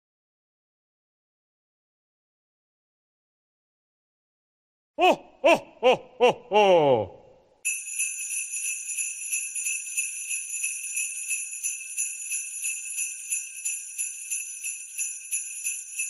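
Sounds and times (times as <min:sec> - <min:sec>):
sleigh bells shaken: 0:07.7 - 0:16.0.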